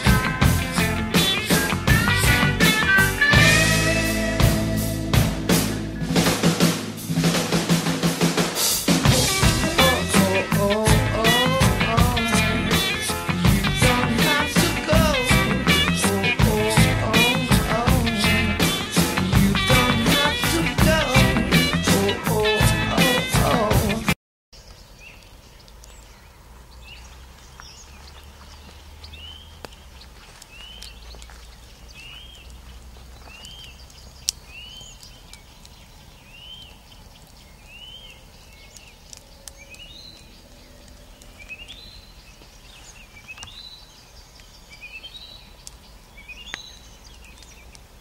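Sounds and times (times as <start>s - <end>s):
bird chirping: 24.6s - 48.0s.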